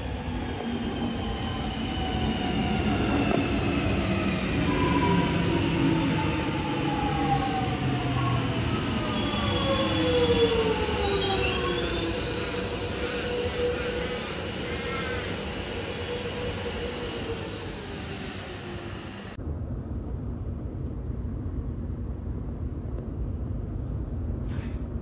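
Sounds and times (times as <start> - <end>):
high-pitched wheel squeals: 9.1 - 16.4.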